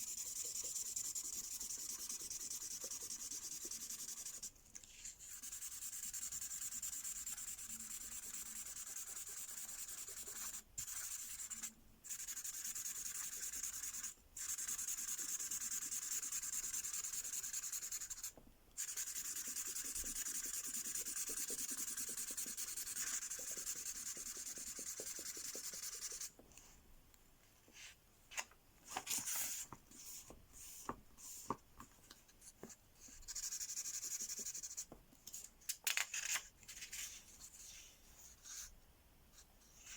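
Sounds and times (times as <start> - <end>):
pen scratching on paper: 0.0 - 4.5, 5.3 - 26.4, 33.1 - 34.8
paper rustling: 27.8 - 31.6.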